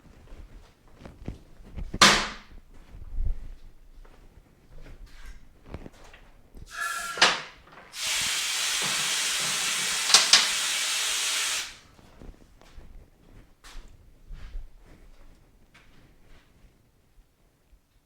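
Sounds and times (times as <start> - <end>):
brief whistling tone: 6.7 - 7.4
pressurized gas hissing: 6.7 - 11.8.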